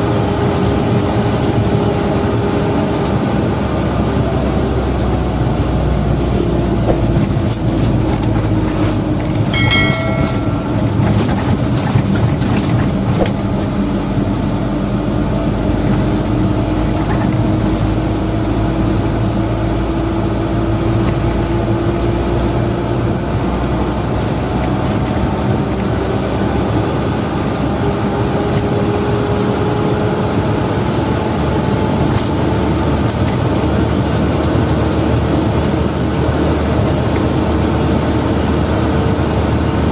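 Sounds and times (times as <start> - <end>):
dump truck engine and road noise: 0.0 - 9.5, 11.1 - 39.9
short pitched tone: 9.6 - 11.7.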